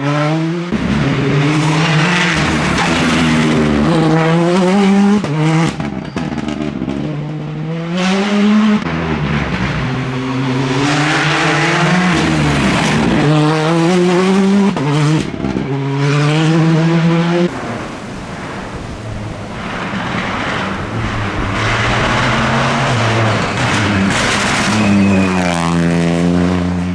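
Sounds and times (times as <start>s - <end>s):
rally car engines revving: 0.0s - 26.9s
tyre and road noise: 0.4s - 16.6s, 17.4s - 26.9s.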